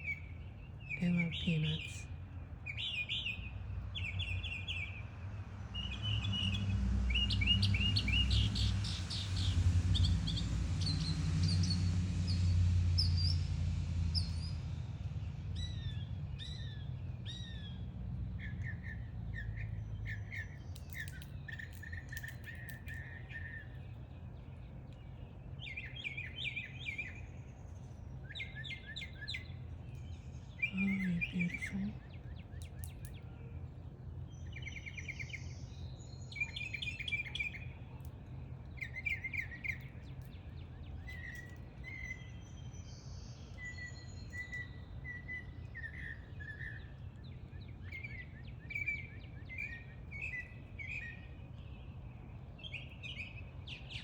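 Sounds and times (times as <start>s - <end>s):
songbirds singing and chirping: 0.0s - 54.0s
rushing noise with low rumble: 5.2s - 19.6s.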